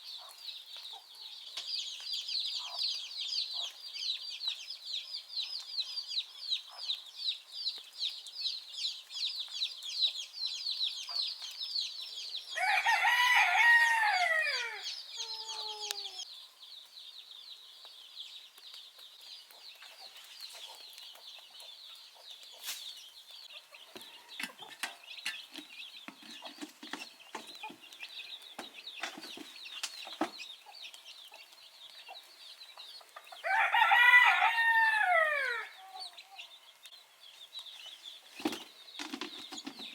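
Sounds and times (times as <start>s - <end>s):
rooster crowing: 12.6s - 16.2s, 33.4s - 36.1s.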